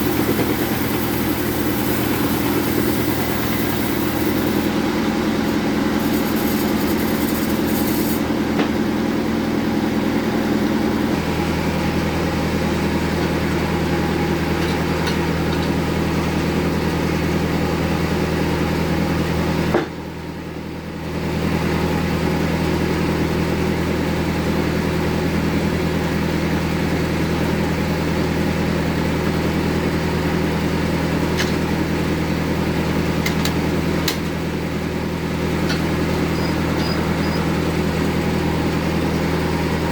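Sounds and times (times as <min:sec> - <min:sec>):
bandsaw running: 0:00.0 - 0:08.3.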